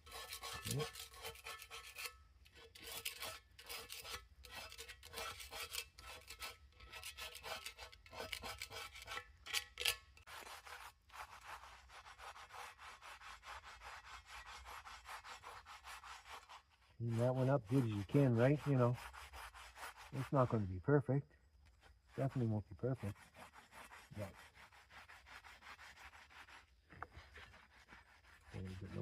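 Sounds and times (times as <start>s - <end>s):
scraping grill pan: 0.0s - 11.2s.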